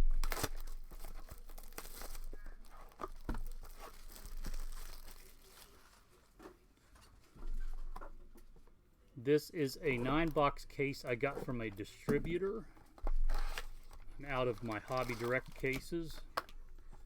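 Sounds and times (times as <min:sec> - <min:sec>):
plastic wrapping crinkling: 0:00.0 - 0:06.4, 0:13.1 - 0:16.6.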